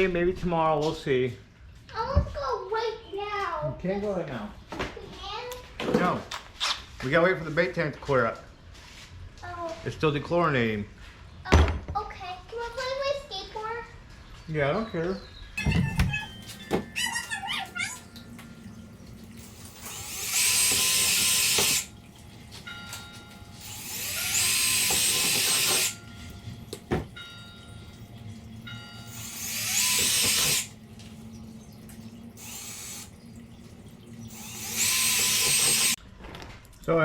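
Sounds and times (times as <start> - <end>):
power drill boring plastic: 19.5 - 21.9, 23.6 - 26.0, 29.1 - 30.8, 32.4 - 33.1, 34.3 - 36.0.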